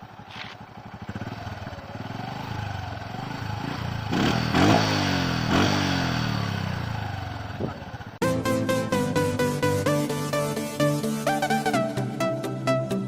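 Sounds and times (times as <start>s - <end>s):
motorcycle engine idling and revving: 0.0s - 8.2s.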